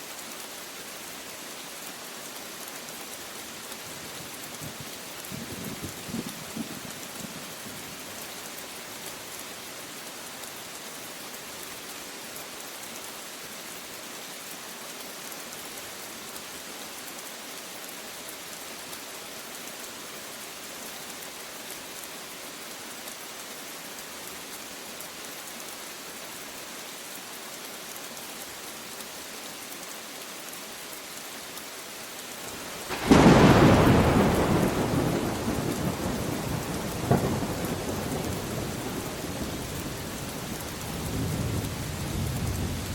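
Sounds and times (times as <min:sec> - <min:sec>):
steady rain falling: 0:00.0 - 0:42.9
loud thunderclap rumbling: 0:32.8 - 0:40.2.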